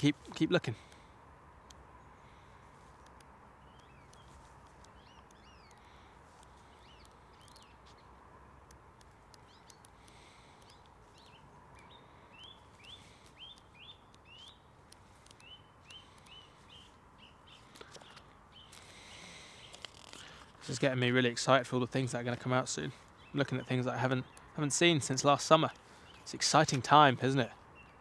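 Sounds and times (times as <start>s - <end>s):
book pages turning: 17.6s - 20.7s.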